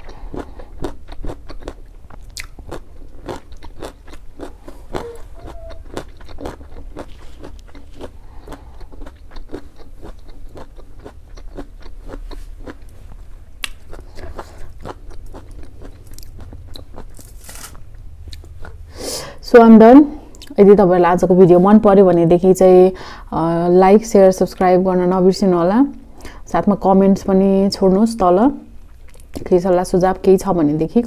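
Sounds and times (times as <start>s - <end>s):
chewing with wet clicks: 0.0s - 13.0s, 13.6s - 17.2s, 18.3s - 18.8s, 28.8s - 29.5s.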